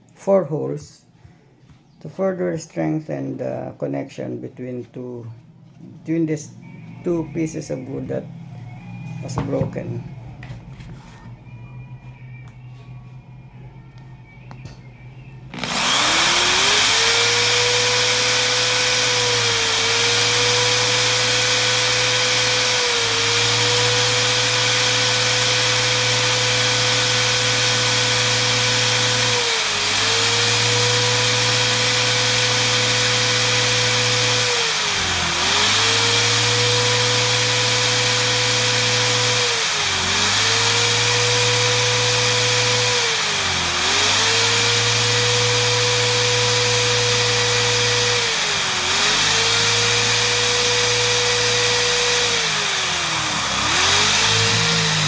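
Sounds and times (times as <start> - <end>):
electric drill boring into wood: 15.5 - 55.0.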